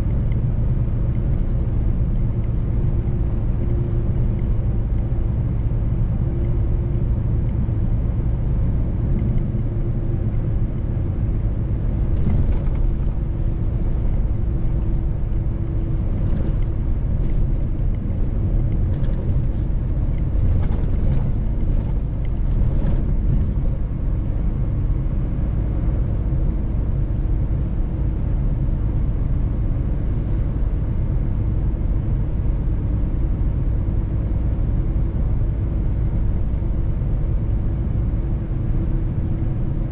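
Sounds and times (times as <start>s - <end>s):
truck engine rumble: 0.0s - 39.9s.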